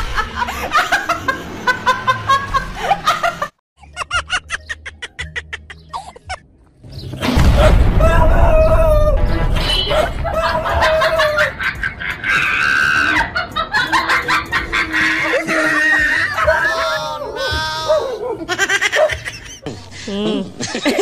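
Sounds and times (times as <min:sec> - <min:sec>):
loud rough rumbling: 0:06.8 - 0:15.0.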